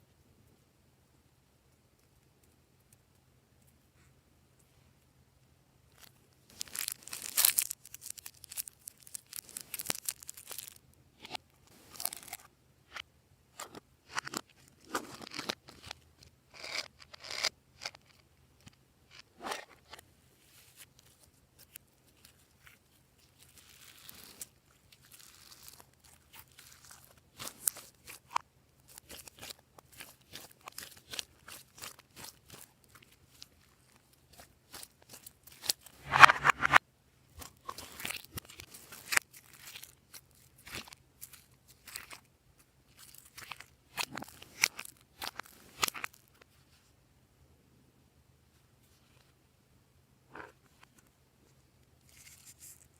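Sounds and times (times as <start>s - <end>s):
slime squished by hand: 23.4s - 33.5s.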